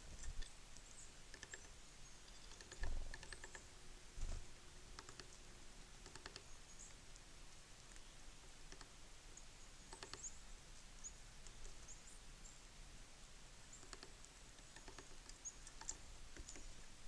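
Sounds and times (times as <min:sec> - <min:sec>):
faint high bird chirps: 0:00.0 - 0:03.6, 0:06.1 - 0:07.0, 0:09.3 - 0:12.6, 0:13.7 - 0:16.9
beaks tapping on feeder: 0:00.2 - 0:03.7, 0:05.0 - 0:05.4, 0:06.0 - 0:07.0, 0:08.7 - 0:09.0, 0:09.8 - 0:10.4, 0:13.7 - 0:16.8.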